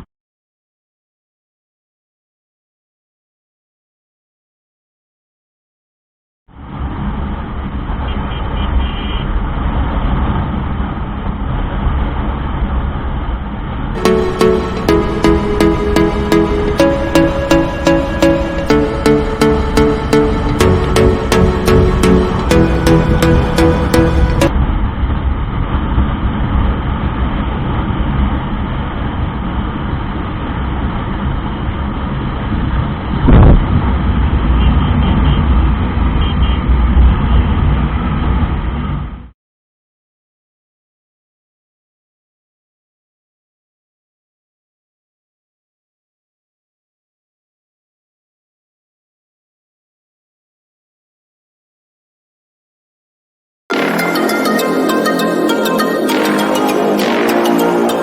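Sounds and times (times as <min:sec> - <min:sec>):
road noise: 0:06.5 - 0:13.9, 0:20.3 - 0:39.3
wind rumble on microphone: 0:24.5 - 0:39.3
wind on microphone: 0:32.5 - 0:36.0.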